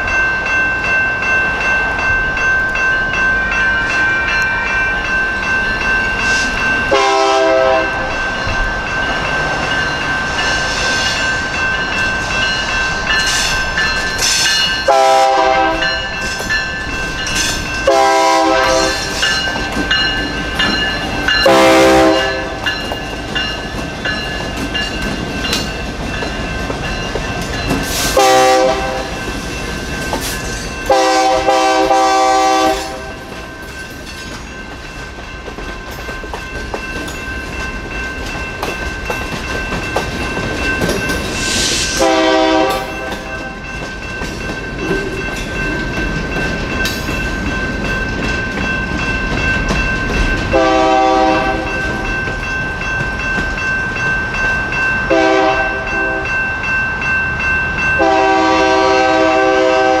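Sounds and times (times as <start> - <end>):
crossing bell ringing: 0.0 - 60.0
freight cars rolling on rails: 0.0 - 60.0
locomotive air horn: 6.9 - 8.1, 14.9 - 15.9, 17.8 - 19.2, 21.4 - 22.6, 28.1 - 29.1, 30.9 - 33.1, 42.0 - 43.3, 50.6 - 51.7, 55.1 - 56.2, 58.0 - 60.0.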